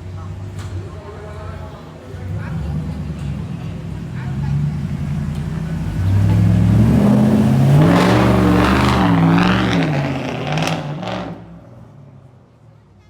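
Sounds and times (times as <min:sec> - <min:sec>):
car engine accelerating: 0:02.1 - 0:11.9.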